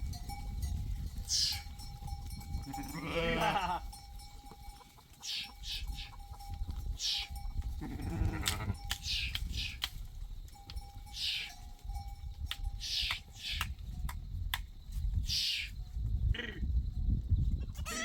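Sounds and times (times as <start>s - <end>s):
goat or sheep bleating: 2.6s - 4.0s, 5.2s - 6.4s, 7.0s - 9.6s, 17.6s - 18.0s.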